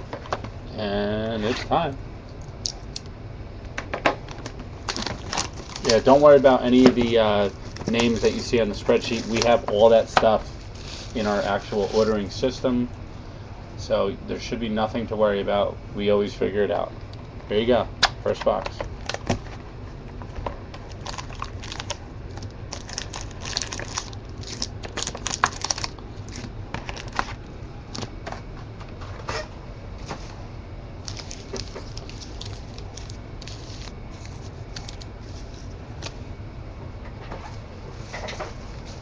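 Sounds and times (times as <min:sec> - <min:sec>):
steady low hum: 0:00.0 - 0:39.0
plastic wrap and cardboard tearing: 0:04.8 - 0:12.2, 0:20.8 - 0:27.4, 0:31.0 - 0:36.1.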